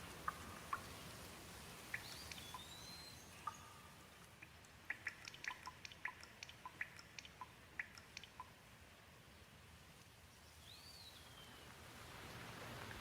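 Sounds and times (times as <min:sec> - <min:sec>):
raindrops ticking and dripping: 0:00.0 - 0:09.0, 0:11.6 - 0:13.0
gentle rain hiss: 0:00.0 - 0:13.0.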